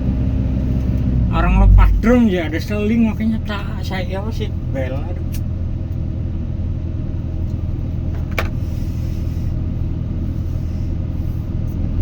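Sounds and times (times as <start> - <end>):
excavator diesel engine humming: 0.0 - 12.0.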